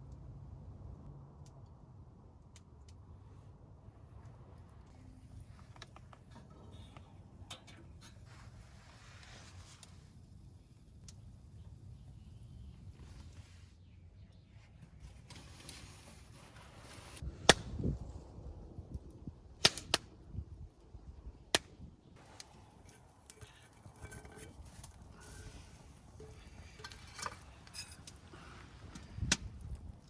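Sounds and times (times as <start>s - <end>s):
faint rustling: 22.2s - 29.2s.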